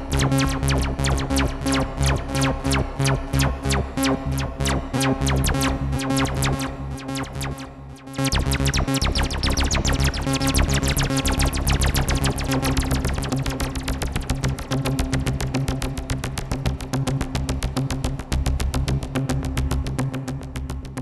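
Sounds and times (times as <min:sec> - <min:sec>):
arpeggiated bass synthesizer: 0:00.0 - 0:16.6.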